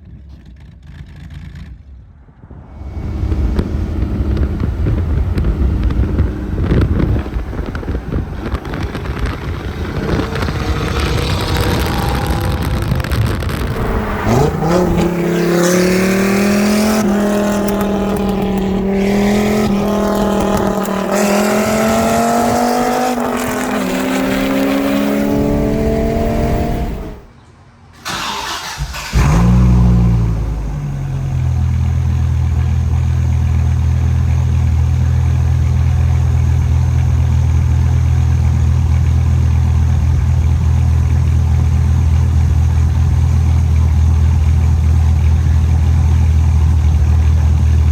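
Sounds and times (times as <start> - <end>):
car engine starting: 2.7 - 27.3, 28.0 - 47.9
sports car engine accelerating: 2.8 - 27.3, 29.1 - 47.9
deep engine idle: 30.6 - 47.9.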